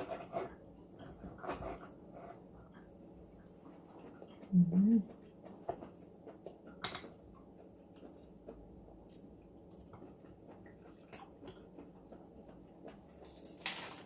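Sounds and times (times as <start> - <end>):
chewing: 3.4 - 13.4.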